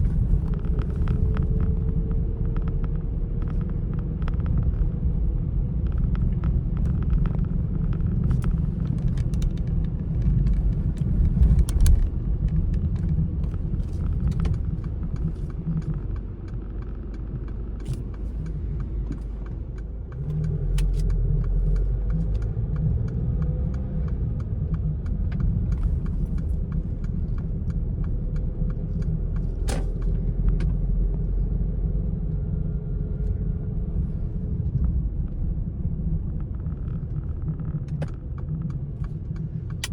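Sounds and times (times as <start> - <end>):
small clicks and rattles: 0.0 - 31.2
car road and engine rumble: 0.0 - 39.9.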